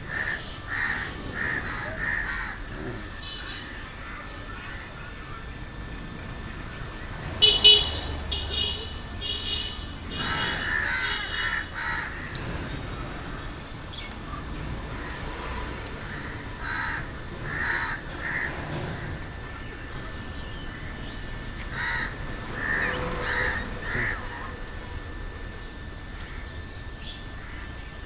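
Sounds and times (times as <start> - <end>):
crows cawing: 0.0 - 5.3, 8.5 - 12.5, 14.9 - 25.1, 27.4 - 27.8.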